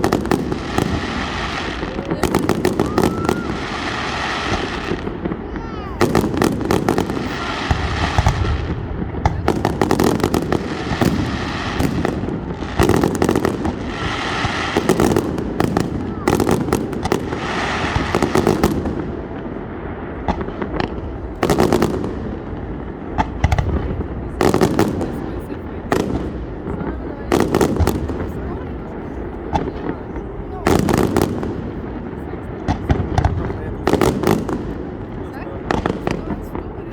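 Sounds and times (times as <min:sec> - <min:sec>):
fireworks crackling pops: 0:00.0 - 0:25.4.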